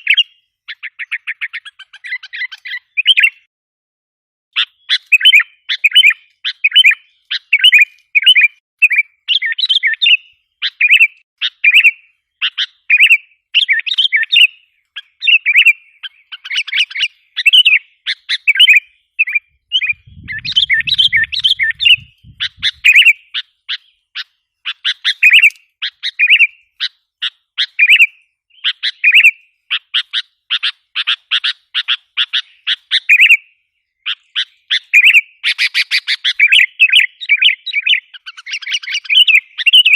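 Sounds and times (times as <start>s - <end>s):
bulbul chirping: 4.6s - 24.0s, 24.7s - 26.6s.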